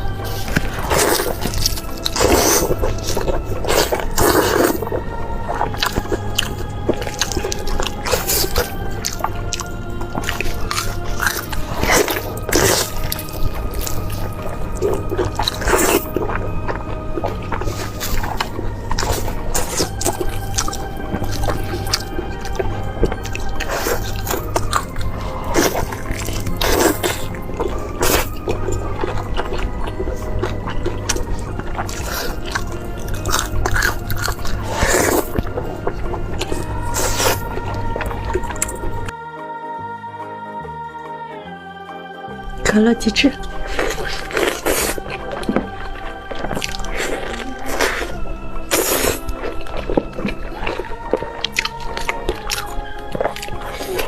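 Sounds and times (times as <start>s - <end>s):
wet eating sounds: 0.0s - 39.2s, 42.8s - 54.0s
background music: 0.0s - 54.0s.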